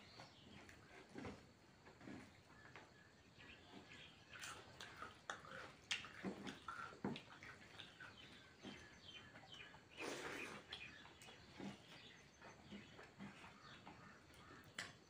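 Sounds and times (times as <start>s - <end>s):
mouth chewing: 3.4s - 15.0s
wet mouth clicks and smacks: 4.4s - 7.9s
slurp: 9.9s - 11.8s.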